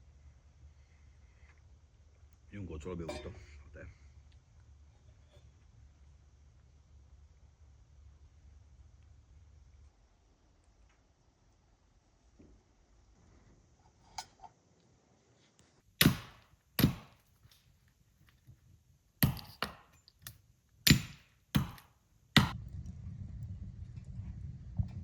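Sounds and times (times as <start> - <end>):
sharp chopping knocks: 16.0 - 17.2, 19.2 - 19.9, 20.9 - 22.6
steady low rumble: 22.5 - 25.0.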